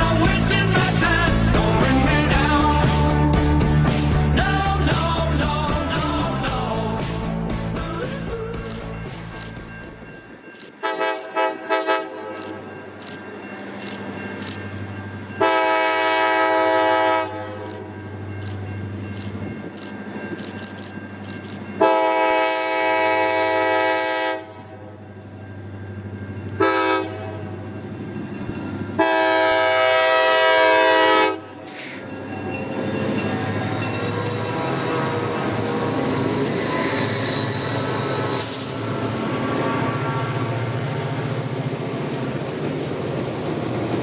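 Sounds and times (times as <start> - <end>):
train rumbling and rattling: 0.0 - 44.0
locomotive air horn blasts: 10.8 - 12.6, 15.4 - 17.8, 21.8 - 25.0, 26.6 - 27.5, 29.0 - 32.0.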